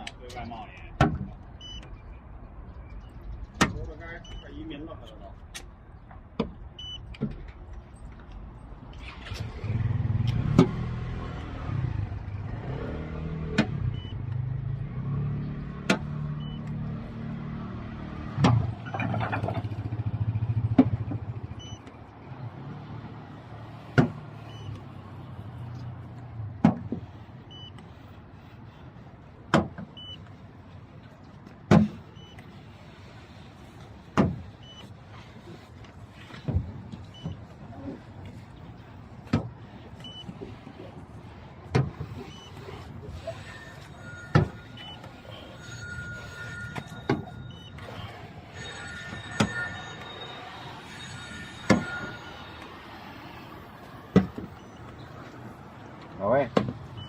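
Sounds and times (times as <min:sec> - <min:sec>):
faint short beeps: 0:42.2 - 0:52.7.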